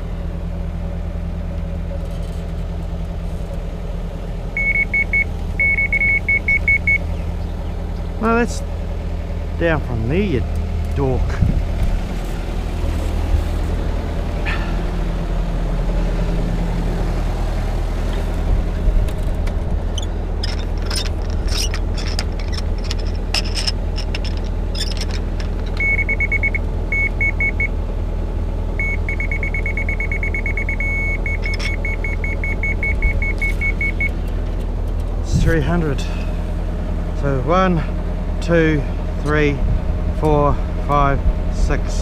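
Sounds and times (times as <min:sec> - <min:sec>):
excavator diesel engine running: 0:00.0 - 0:42.0
clicks and knocks: 0:20.4 - 0:25.9
high electronic beeping: 0:28.8 - 0:34.1.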